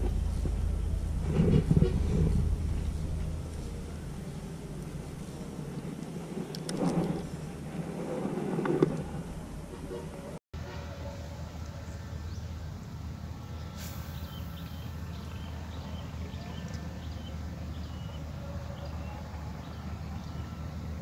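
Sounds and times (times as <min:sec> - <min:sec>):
steady low hum: 0:00.0 - 0:21.0
small birds chirping: 0:13.5 - 0:20.9
brief hiss: 0:13.7 - 0:15.0.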